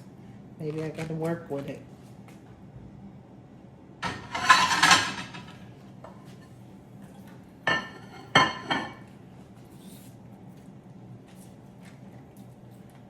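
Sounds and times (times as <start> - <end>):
utensil clinking against dish: 4.0 - 5.6, 7.7 - 9.1.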